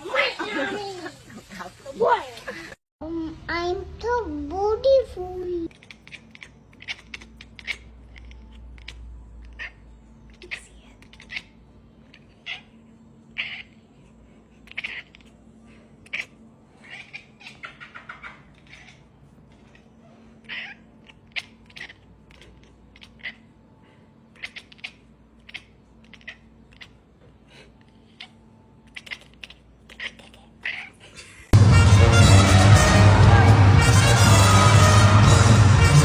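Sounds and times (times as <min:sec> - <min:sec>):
cat meowing and chirping: 0:05.7 - 0:13.8, 0:14.7 - 0:15.4, 0:16.0 - 0:23.5, 0:24.3 - 0:27.0, 0:28.0 - 0:31.0
loud music: 0:31.6 - 0:36.0.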